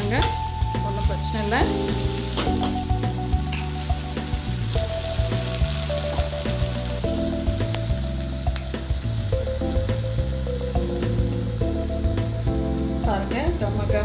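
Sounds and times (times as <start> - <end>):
chicken sizzling in hot oil: 0.0 - 14.0
soft background music: 0.0 - 14.0.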